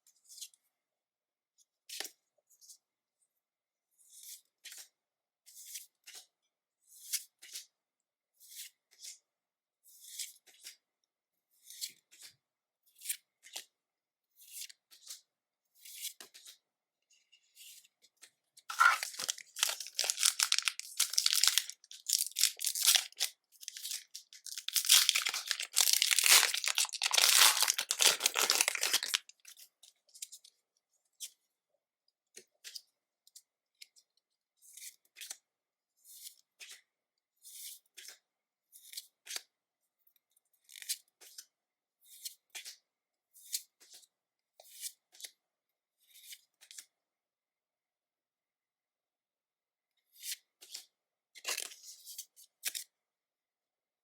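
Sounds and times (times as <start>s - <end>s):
foil wrapper tearing and crinkling: 18.7s - 29.3s
trading cards being handled: 18.7s - 29.3s.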